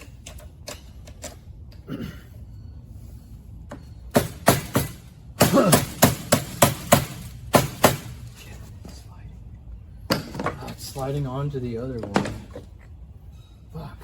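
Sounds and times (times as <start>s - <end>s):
hammer striking metal axle: 3.7s - 8.2s.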